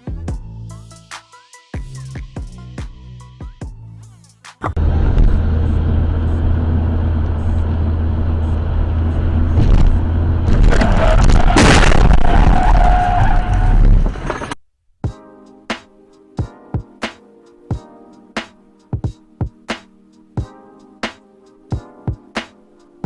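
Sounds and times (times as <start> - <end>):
car engine and tyre rumble: 4.7 - 14.6
loud crash: 9.6 - 14.6.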